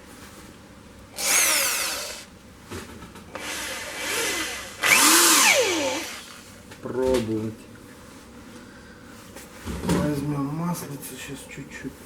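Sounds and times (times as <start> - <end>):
electric drill whining: 1.2 - 2.3, 3.4 - 6.4.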